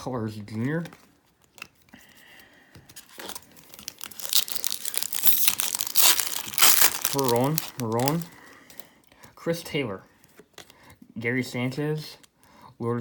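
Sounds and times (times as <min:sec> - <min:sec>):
wrapper tearing and crinkling: 0:03.0 - 0:08.9.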